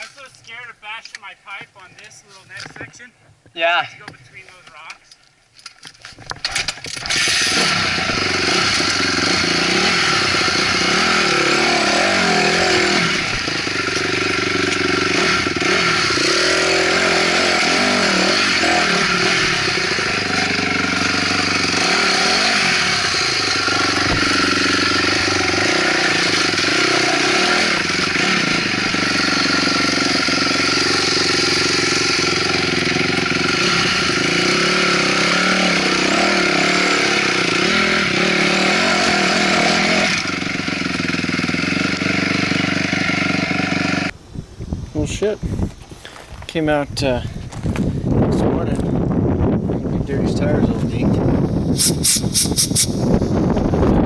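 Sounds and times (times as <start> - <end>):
dirt bike engine revving: 6.8 - 44.2, 50.4 - 54.0.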